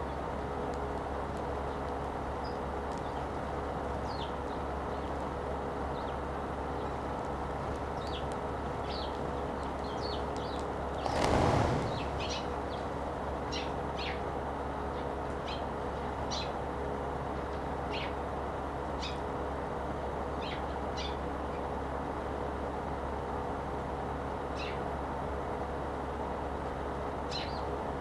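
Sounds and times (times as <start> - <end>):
low background hum: 0.0 - 28.0
sparrows chirping: 1.5 - 16.6, 17.8 - 18.3, 18.9 - 19.3, 20.3 - 21.7, 27.2 - 27.7
loud rushing noise: 11.0 - 13.2.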